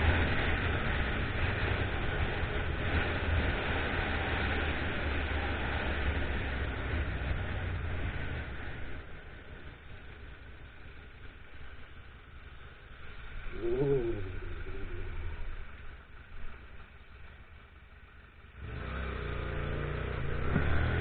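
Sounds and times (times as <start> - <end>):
motorcycle engine running: 0.0 - 21.0
road and wind noise: 0.0 - 21.0
motorcycle engine revving: 18.6 - 21.0.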